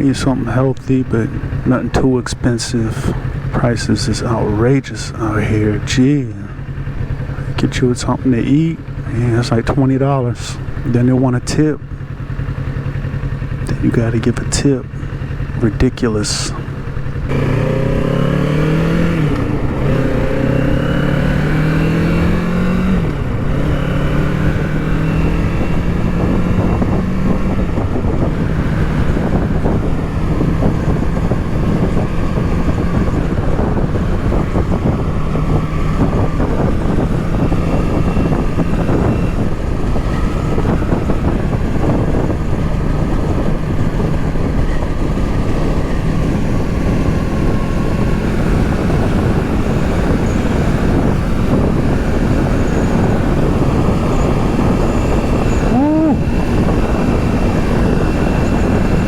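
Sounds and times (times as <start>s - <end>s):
motorcycle engine accelerating: 0.0s - 59.0s
wind on microphone: 16.5s - 59.0s.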